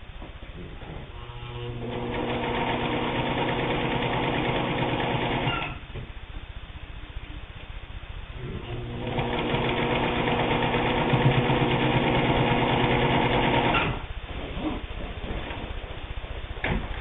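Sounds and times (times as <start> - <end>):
sewing machine stitching: 1.8 - 5.8, 8.7 - 14.0.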